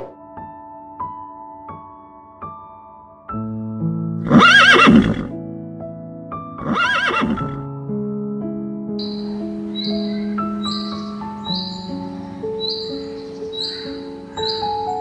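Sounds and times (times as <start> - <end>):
soft piano music: 0.0 - 15.0
horse whinnying: 4.2 - 5.3, 6.6 - 7.6.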